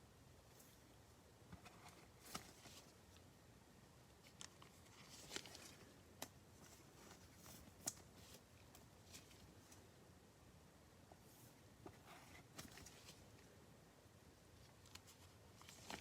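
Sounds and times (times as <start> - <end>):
low room hiss: 0.0 - 16.0
trading cards rustling and clicking: 4.2 - 9.6.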